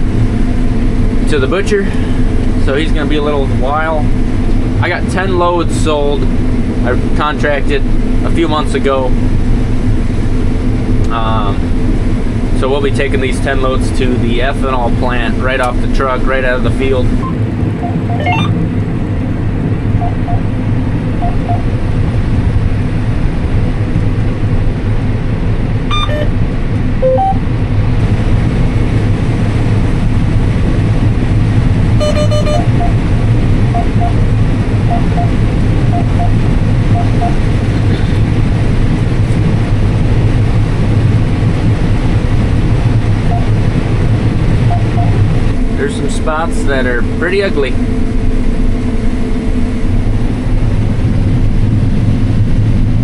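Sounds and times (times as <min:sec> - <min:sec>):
combine harvester drone: 0:00.0 - 0:53.0
short electronic beeps: 0:17.2 - 0:18.6, 0:20.0 - 0:20.5, 0:21.2 - 0:21.7, 0:25.9 - 0:26.3, 0:27.0 - 0:27.4, 0:32.0 - 0:33.0, 0:33.7 - 0:34.2, 0:34.9 - 0:37.4, 0:43.3 - 0:43.5, 0:44.7 - 0:45.2.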